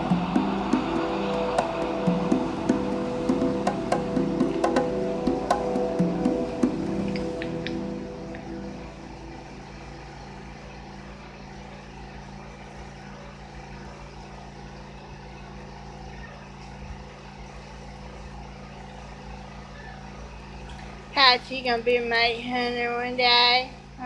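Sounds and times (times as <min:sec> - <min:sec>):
low mechanical drone: 0:00.0 - 0:12.4.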